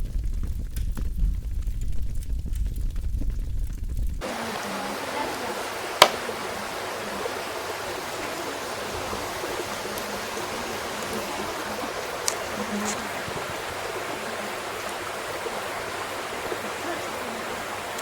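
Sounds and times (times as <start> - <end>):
small fire pops: 0.0 - 13.1
wood fire hissing: 4.2 - 18.0
burning wood cracking: 5.9 - 6.4.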